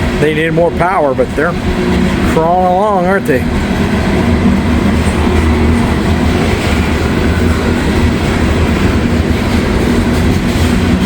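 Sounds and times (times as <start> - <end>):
train cars rolling on rails: 0.0 - 11.0.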